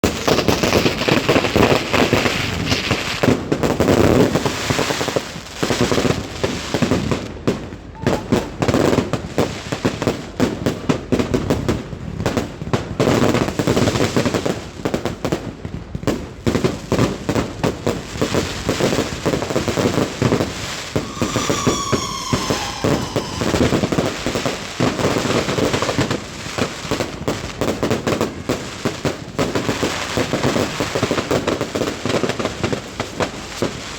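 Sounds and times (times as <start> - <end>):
fireworks bangs and crackles: 0.0 - 33.9
falling firework whistle: 8.0 - 9.0, 20.6 - 25.8.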